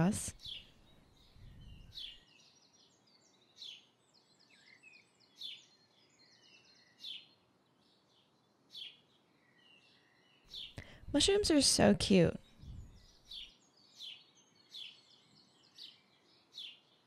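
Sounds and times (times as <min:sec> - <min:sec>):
soft bird twittering: 0:00.4 - 0:02.9.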